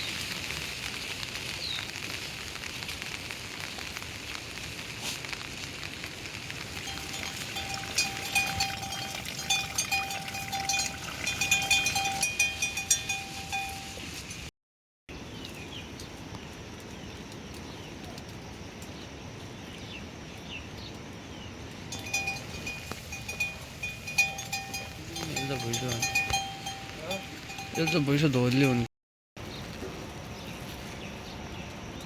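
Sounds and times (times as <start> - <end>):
rain hissing: 0.0 - 14.5, 21.7 - 28.9
livestock bells clinking: 6.8 - 14.5, 21.9 - 28.9.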